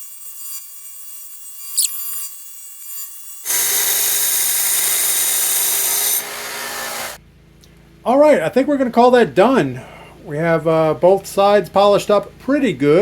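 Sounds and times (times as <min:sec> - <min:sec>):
belt grinder grinding steel: 0:00.0 - 0:07.2.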